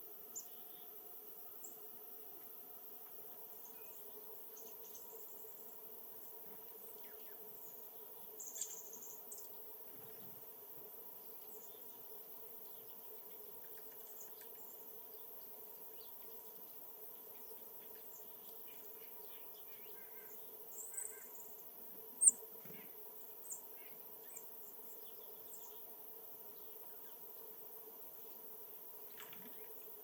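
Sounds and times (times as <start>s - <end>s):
faint steady hum: 0.0s - 30.0s
small birds chirping: 3.4s - 10.4s, 11.2s - 27.5s.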